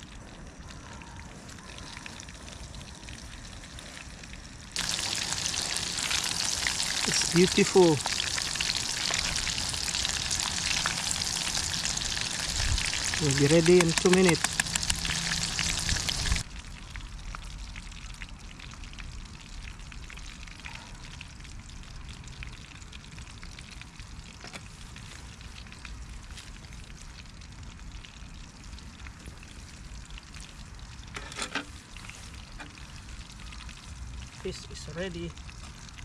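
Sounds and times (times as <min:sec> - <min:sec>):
oil crackling: 0:00.0 - 0:20.1
food sizzling in hot oil: 0:00.0 - 0:20.6.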